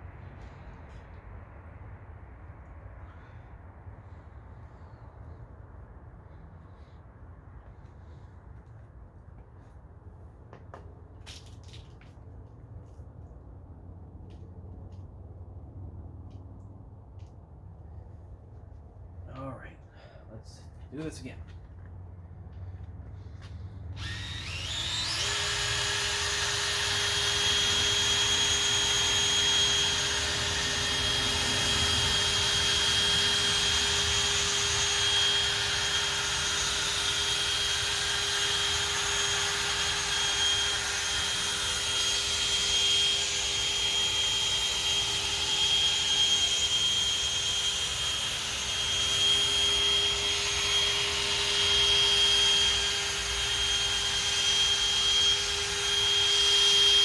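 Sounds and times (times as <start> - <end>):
electric polisher whining: 24.0 - 57.0.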